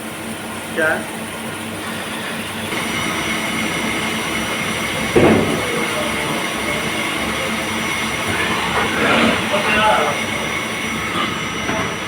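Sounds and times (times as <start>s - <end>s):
lathe machine noise: 0.1s - 12.0s
constant high whine: 3.5s - 12.0s.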